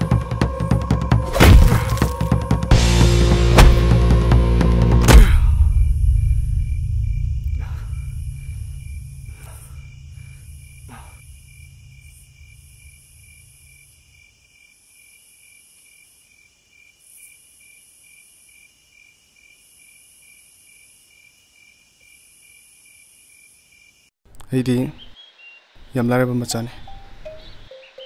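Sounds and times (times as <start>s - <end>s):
crickets chirping: 5.6s - 24.1s.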